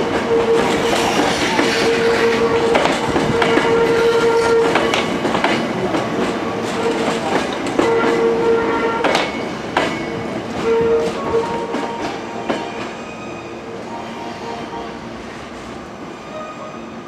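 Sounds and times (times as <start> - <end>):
train wheels clacking over rail joints: 0.0 - 13.0.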